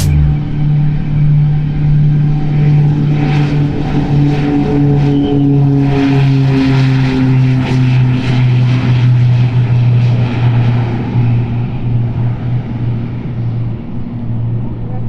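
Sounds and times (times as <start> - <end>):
engine hiss: 0.0 - 0.5
airplane engines droning: 0.0 - 15.0.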